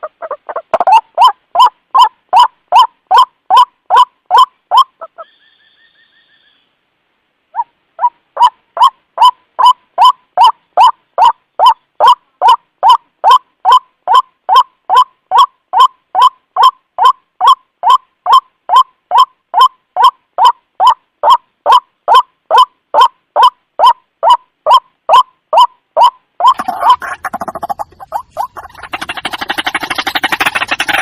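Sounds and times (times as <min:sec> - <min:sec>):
faint higher bird call: 0:04.7 - 0:06.8
bird hoarse repeated call: 0:07.6 - 0:31.0.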